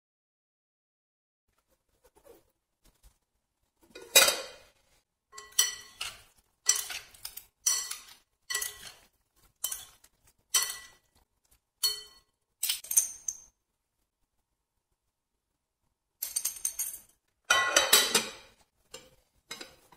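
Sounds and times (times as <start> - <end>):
metal spoon striking glass bowl: 11.8 - 12.3.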